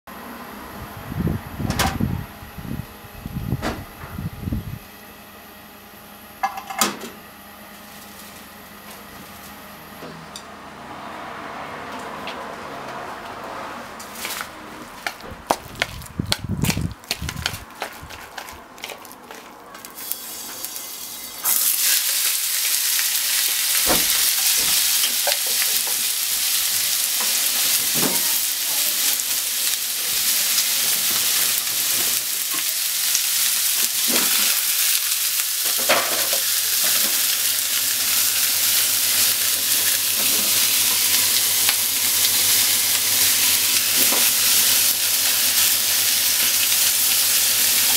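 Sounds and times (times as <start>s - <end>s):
food sizzling in a frying pan: 20.0s - 47.9s.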